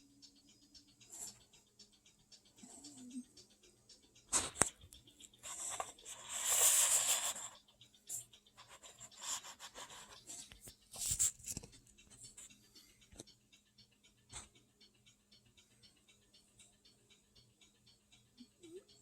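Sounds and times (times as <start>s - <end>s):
light clicks and taps: 0.2s - 14.6s.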